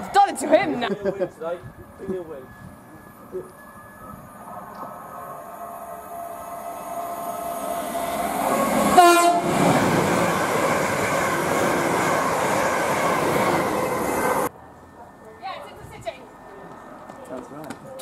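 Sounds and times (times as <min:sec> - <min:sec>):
train wheel and rail rush: 0:00.0 - 0:18.0
train horn blast: 0:06.3 - 0:09.8.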